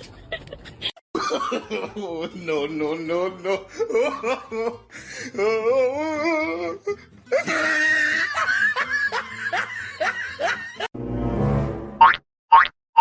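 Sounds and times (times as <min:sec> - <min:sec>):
people laughing hard: 0:00.0 - 0:05.4, 0:07.3 - 0:10.9.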